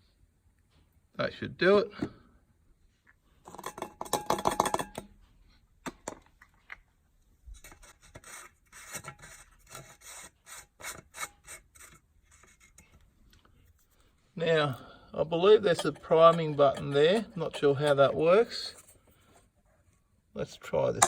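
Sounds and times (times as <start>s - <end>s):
objects rubbing and scraping: 13.7s - 20.1s.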